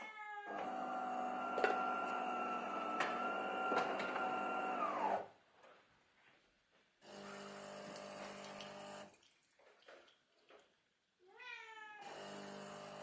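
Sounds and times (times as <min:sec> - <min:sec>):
cat meowing: 0:00.0 - 0:00.7, 0:11.3 - 0:12.1.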